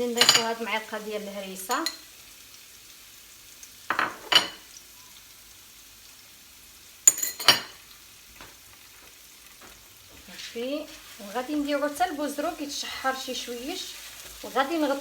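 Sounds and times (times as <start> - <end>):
garlic sizzling in oil: 0.0 - 15.0
spoon scraping a pan: 3.9 - 4.7, 7.0 - 15.0.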